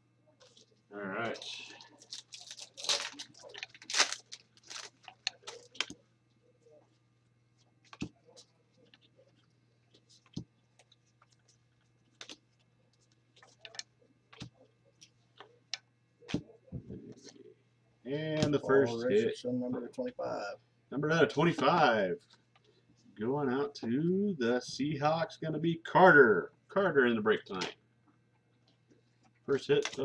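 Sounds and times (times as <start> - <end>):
faint steady hum: 0.0 - 30.0
cards flicking and rustling: 2.0 - 6.0, 7.9 - 9.2
cards clicking and tapping: 7.9 - 8.2.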